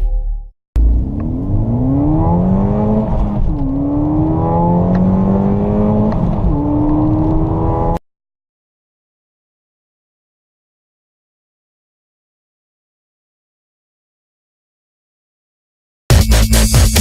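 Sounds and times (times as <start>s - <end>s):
car engine accelerating hard: 0.8s - 8.0s.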